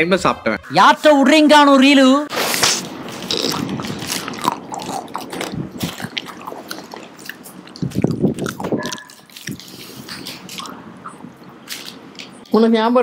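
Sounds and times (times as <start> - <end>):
people chewing chocolate bars: 2.3 - 12.5
crisp crunches and clicks: 2.4 - 10.8.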